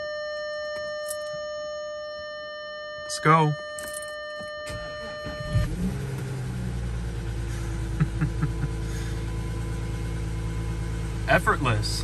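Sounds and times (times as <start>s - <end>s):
diesel engine cranking: 4.6s - 12.0s
diesel engine idling: 4.7s - 12.0s.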